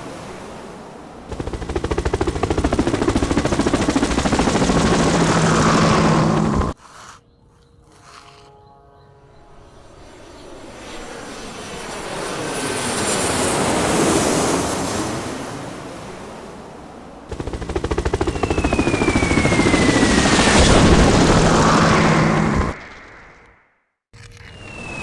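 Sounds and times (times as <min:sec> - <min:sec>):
airplane passing overhead: 0:00.0 - 0:23.4, 0:24.5 - 0:25.0
chopping aircraft engine: 0:01.3 - 0:06.8, 0:07.8 - 0:23.4, 0:24.5 - 0:25.0
falling whistle: 0:18.3 - 0:21.0, 0:24.4 - 0:25.0.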